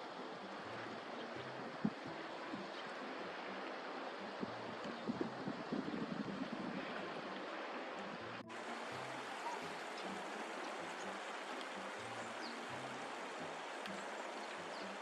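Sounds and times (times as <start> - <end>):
water rushing: 0.0 - 15.0.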